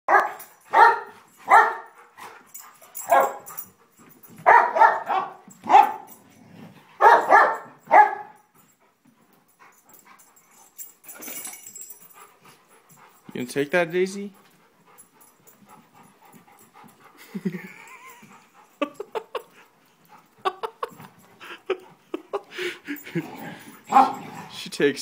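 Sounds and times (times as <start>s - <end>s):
dog barking: 0.1s - 2.0s, 3.1s - 3.4s, 4.4s - 6.1s, 7.0s - 8.4s, 23.9s - 24.2s.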